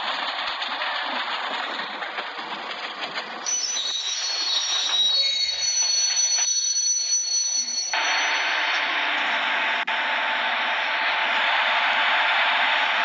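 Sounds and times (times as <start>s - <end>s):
rushing rail noise: 0.0s - 13.0s
train wheels squealing: 3.4s - 8.7s.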